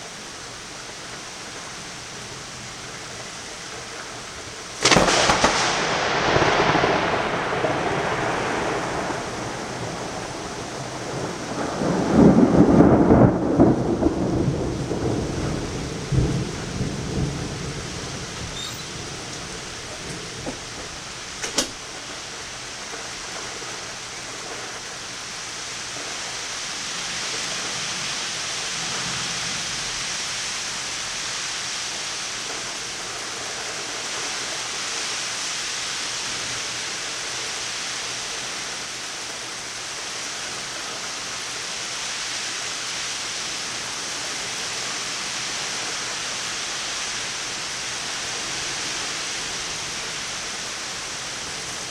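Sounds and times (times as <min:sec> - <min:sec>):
rain pouring: 0:00.0 - 0:51.9
thunder rumble: 0:04.5 - 0:22.6
sharp click: 0:21.4 - 0:21.8.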